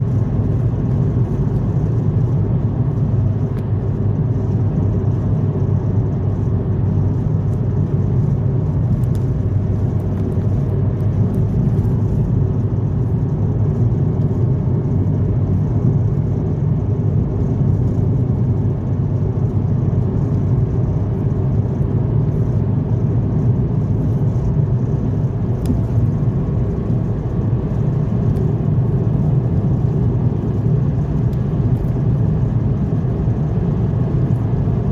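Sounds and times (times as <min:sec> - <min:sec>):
car driving on road: 0:00.0 - 0:34.9.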